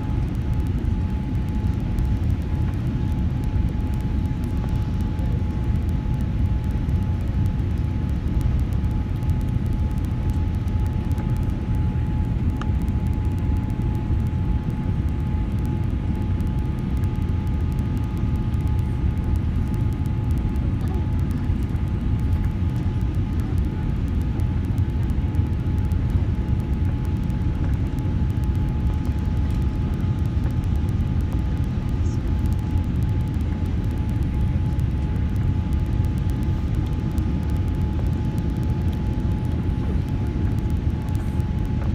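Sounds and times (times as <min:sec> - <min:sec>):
airliner cabin rumble: 0:28.5 - 0:41.9.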